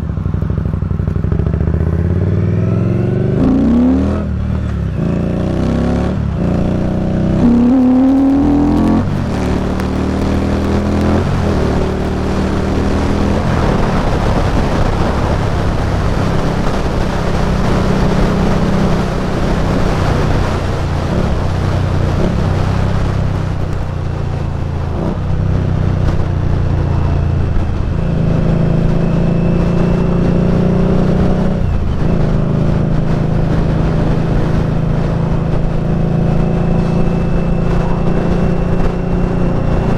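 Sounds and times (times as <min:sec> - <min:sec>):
motorcycle engine shifting gears: 0:00.0 - 0:39.9
wind rushing over microphone: 0:00.0 - 0:39.9.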